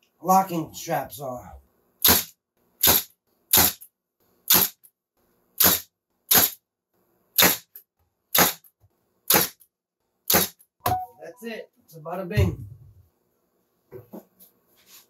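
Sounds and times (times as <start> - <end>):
stapler firing into wood: 2.0 - 3.8, 4.5 - 4.8, 5.6 - 6.6, 7.4 - 8.7, 9.3 - 9.6, 10.3 - 10.6.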